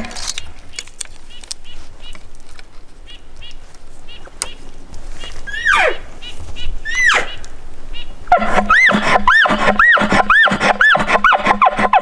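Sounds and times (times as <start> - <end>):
elk bugling: 5.5 - 7.6, 8.3 - 12.0.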